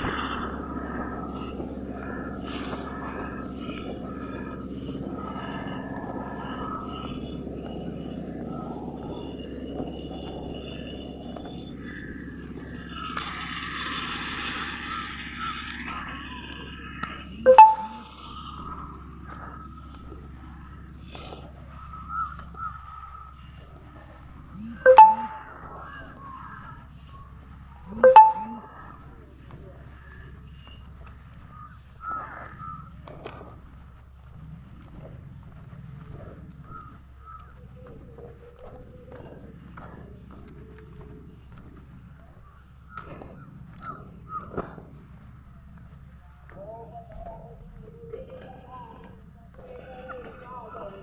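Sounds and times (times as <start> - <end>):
bird calling: 17.4 - 18.1.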